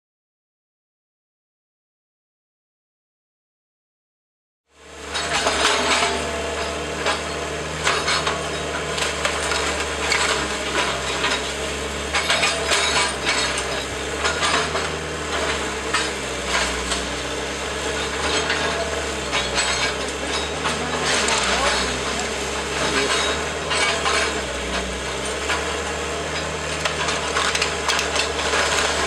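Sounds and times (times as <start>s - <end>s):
demolition machine engine hum: 4.8s - 29.0s
wood cracking and splintering: 18.1s - 29.0s.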